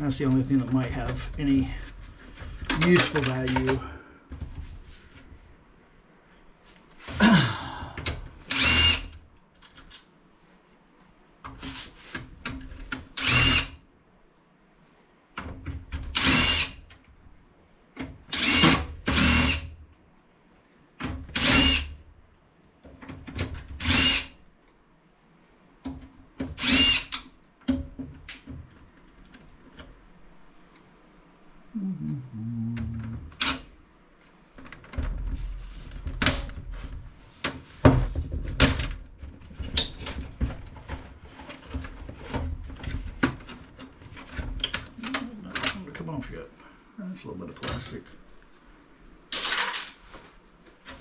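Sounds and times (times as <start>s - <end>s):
power drill whining: 8.5s - 9.1s, 13.2s - 13.8s, 16.2s - 16.8s, 18.3s - 19.7s, 21.3s - 21.9s, 23.8s - 24.4s, 26.6s - 27.2s.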